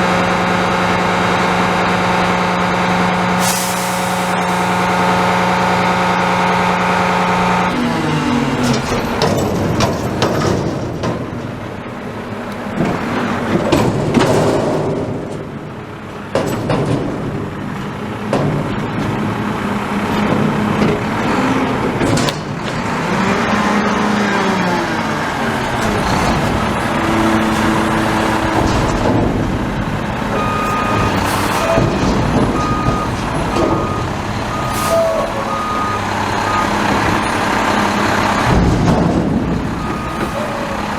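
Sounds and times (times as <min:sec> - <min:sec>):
diesel engine revving: 0:00.0 - 0:10.6, 0:17.2 - 0:40.9
reversing alarm beeps: 0:03.8 - 0:05.5, 0:30.4 - 0:37.4, 0:39.8 - 0:40.9
knocks and clatter: 0:08.6 - 0:11.8, 0:12.7 - 0:15.6, 0:16.3 - 0:19.5, 0:25.5 - 0:34.6, 0:36.9 - 0:40.9.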